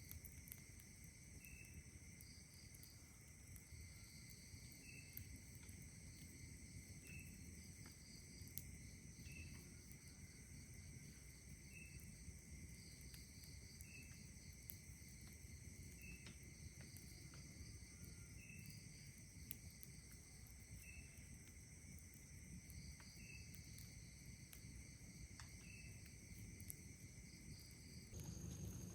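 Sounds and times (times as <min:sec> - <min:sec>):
campfire crackling: 0:00.0 - 0:28.9
crickets trilling: 0:00.0 - 0:28.9
low breeze rumble: 0:28.2 - 0:28.9.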